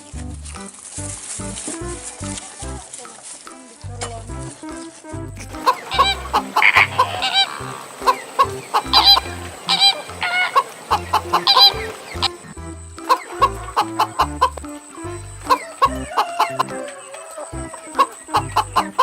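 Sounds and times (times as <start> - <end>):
background music with bass line: 0.0 - 19.0
chickens clucking: 4.7 - 19.0.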